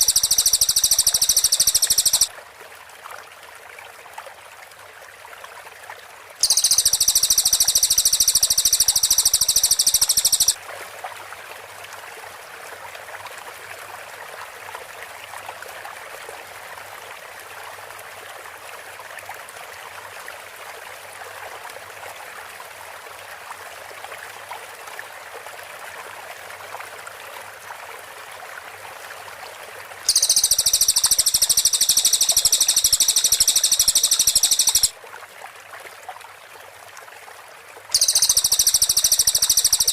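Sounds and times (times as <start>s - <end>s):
background hiss: 0.0s - 2.3s, 6.4s - 10.6s, 30.1s - 34.9s, 38.0s - 39.9s
bird song bursts: 0.0s - 2.3s, 6.4s - 10.6s, 30.1s - 34.9s, 38.0s - 39.9s.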